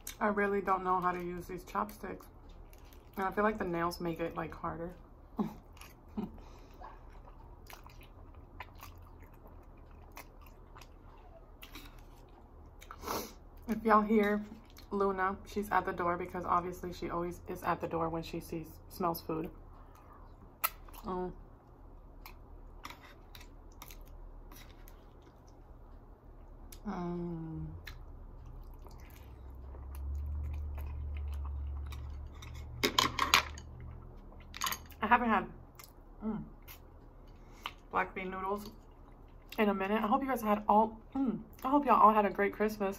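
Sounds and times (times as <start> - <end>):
person chewing food: 5.1 - 13.7, 21.7 - 26.8, 27.8 - 32.8.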